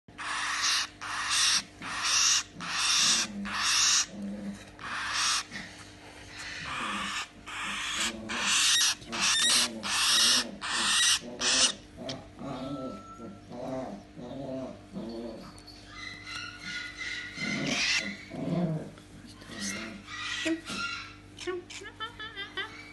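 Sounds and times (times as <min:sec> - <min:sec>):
bird chick raspy begging calls: 0:00.2 - 0:04.1, 0:04.8 - 0:05.5, 0:06.4 - 0:11.8.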